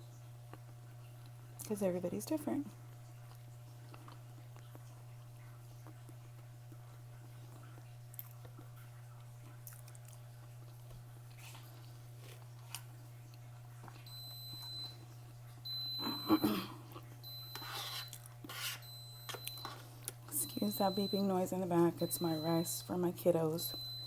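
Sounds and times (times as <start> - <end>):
soft chewing: 0.4 - 1.7, 2.8 - 20.4
rice cooker electronic beep: 14.1 - 15.0, 15.6 - 16.6, 17.2 - 18.2, 18.8 - 22.9, 23.6 - 24.0.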